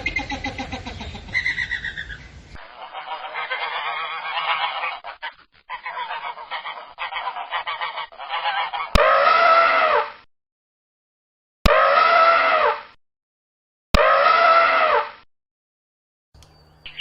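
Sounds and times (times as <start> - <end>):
geese honking: 0.0 - 10.0.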